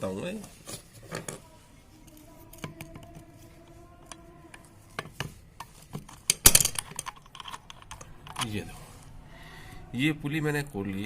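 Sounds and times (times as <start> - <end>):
metal clicks and scraping: 4.0 - 9.1
metal clatter: 6.0 - 8.5.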